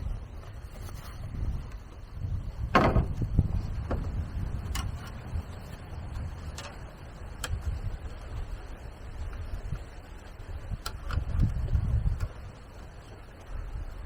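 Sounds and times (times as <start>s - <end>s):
low rumble: 0.0s - 12.7s
sharp knocks: 2.7s - 3.2s.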